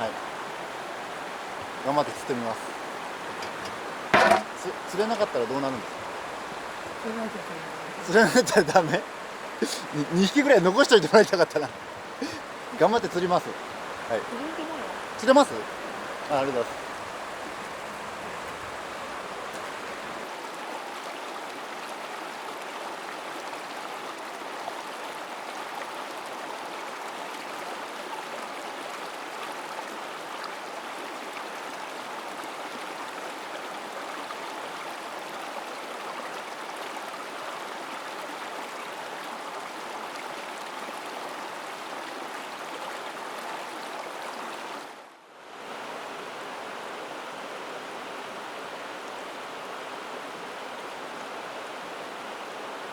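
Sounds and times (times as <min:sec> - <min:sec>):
stream flowing over rocks: 0:00.0 - 0:52.9.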